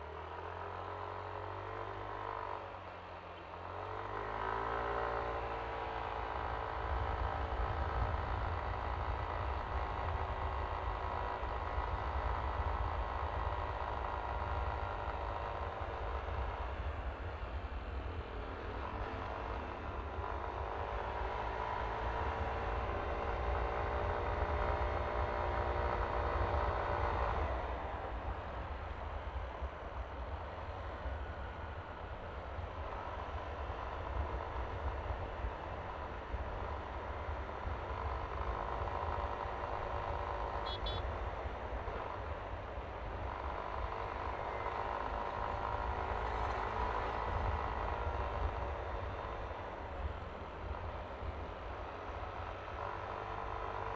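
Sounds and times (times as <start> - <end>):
scooter engine running: 36.5 - 41.1.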